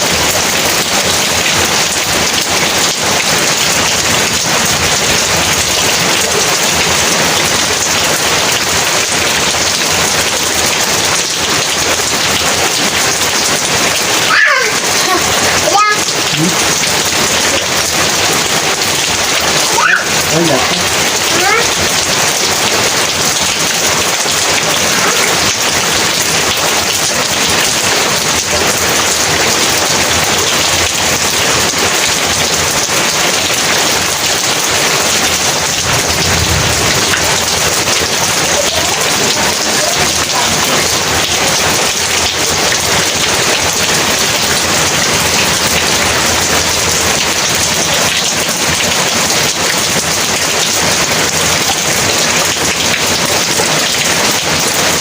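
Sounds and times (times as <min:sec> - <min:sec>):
heavy rain pouring: 0:00.0 - 0:55.0
low roll of thunder: 0:35.5 - 0:38.6.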